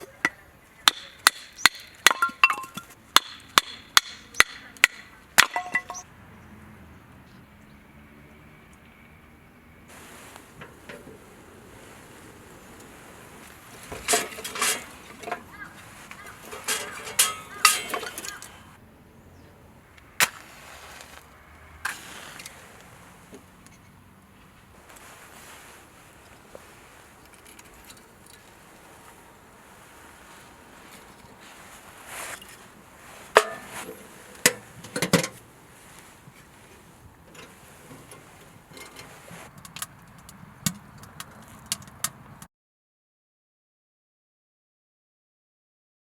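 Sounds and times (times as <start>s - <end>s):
clattering knocks and scrapes: 9.9s - 18.7s, 24.8s - 42.2s.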